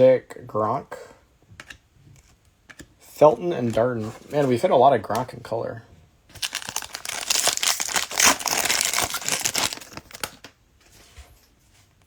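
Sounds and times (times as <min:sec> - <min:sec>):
plastic wrapper crinkling and tearing: 0:06.3 - 0:10.5.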